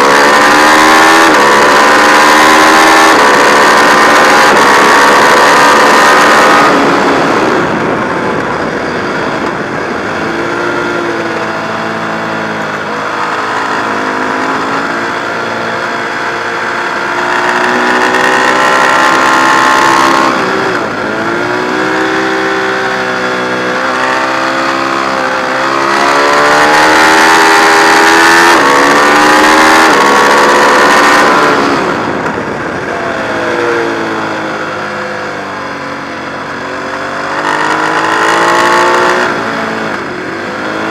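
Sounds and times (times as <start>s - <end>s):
motorcycle engine accelerating hard: 0.0s - 40.9s.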